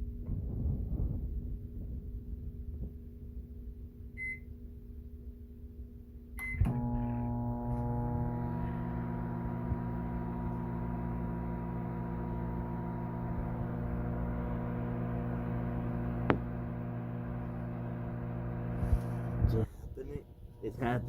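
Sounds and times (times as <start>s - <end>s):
microwave click: 6.4s - 18.8s
microwave oven humming: 6.4s - 21.0s.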